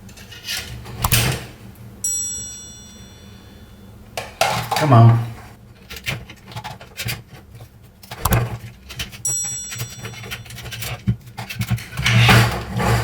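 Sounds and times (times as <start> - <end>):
brief high ringing: 2.0 - 4.0
plastic keys clicking and knocking: 8.0 - 12.0.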